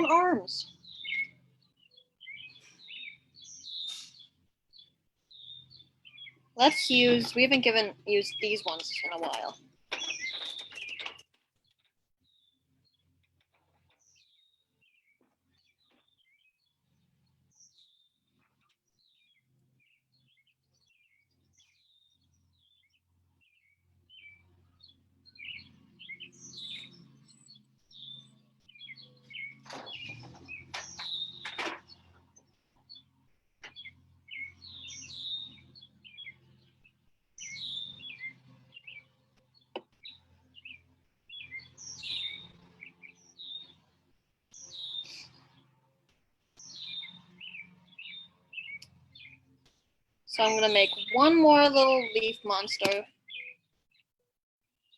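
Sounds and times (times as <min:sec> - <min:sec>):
birds chirping and singing: 0:00.0 - 0:11.3, 0:12.2 - 0:45.7, 0:46.6 - 0:49.7, 0:50.3 - 0:54.0
sharp clicks: 0:08.7 - 0:11.4.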